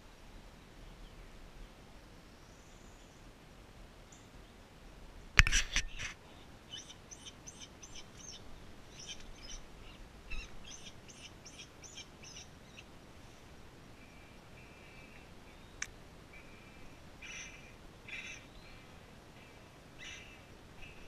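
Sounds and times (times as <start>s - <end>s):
bird chirping: 5.8s - 12.9s, 14.0s - 21.0s.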